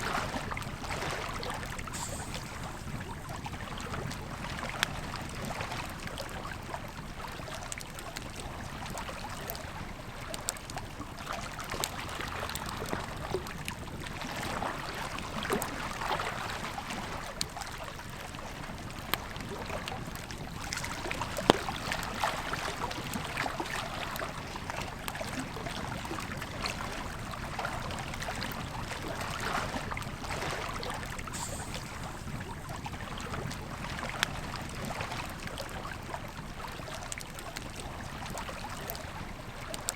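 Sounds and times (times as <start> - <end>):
river flowing: 0.0 - 7.8, 11.0 - 39.2
campfire crackling and popping: 18.6 - 29.2.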